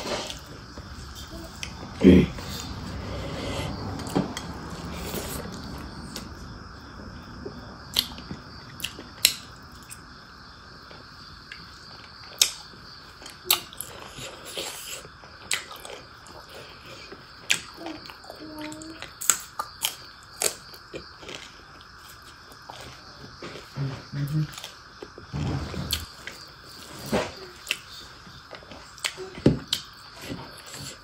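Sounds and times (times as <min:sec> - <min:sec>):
soft chewing: 0:10.9 - 0:25.2.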